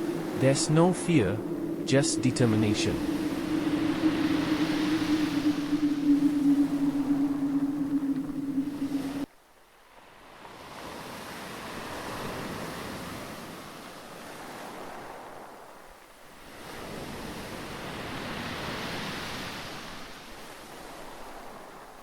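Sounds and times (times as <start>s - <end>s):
waves surging and breaking: 0.0s - 9.3s.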